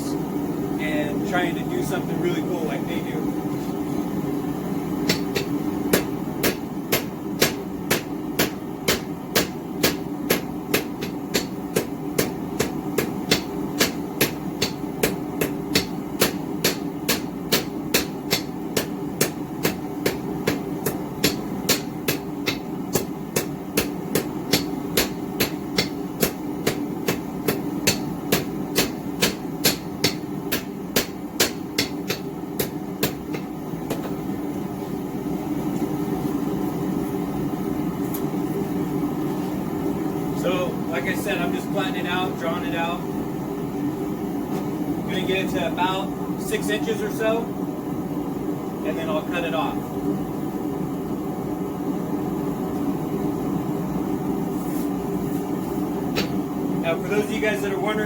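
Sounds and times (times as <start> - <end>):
hammer striking steel on anvil: 5.1 - 34.1.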